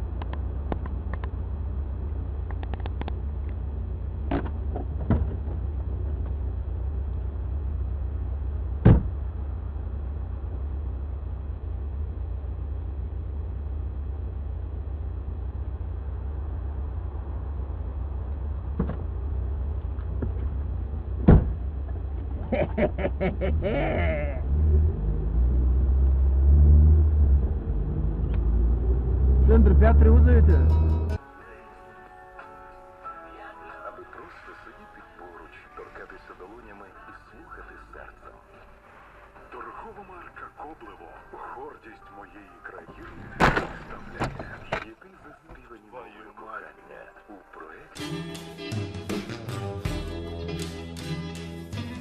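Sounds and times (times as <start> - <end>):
car rumbling on the move: 0.0 - 31.2, 38.6 - 45.8
vehicle engine and road noise: 0.0 - 31.3, 33.9 - 52.0
loud short thump: 8.8 - 9.2, 21.2 - 21.6, 43.4 - 44.8.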